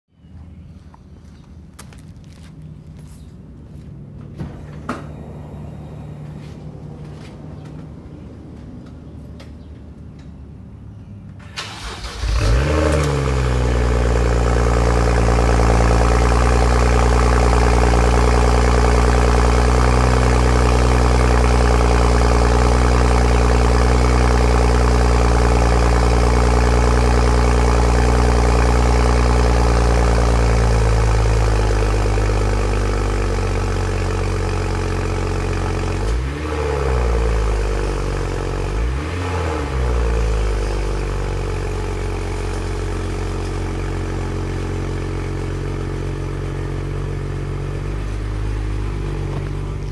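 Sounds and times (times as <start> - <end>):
car engine idling and revving: 0.4 - 49.9
engine starter cranking: 11.4 - 13.2.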